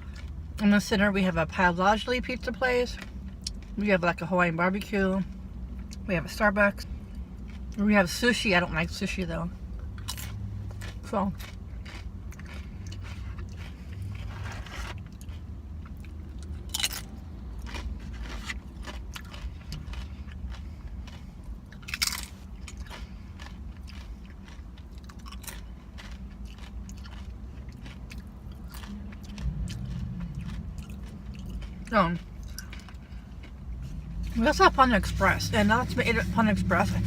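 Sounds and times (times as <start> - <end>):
person chewing: 0.0 - 0.6, 3.0 - 3.8, 6.9 - 7.8, 9.6 - 37.0
loud crisp crunches: 16.4 - 31.8.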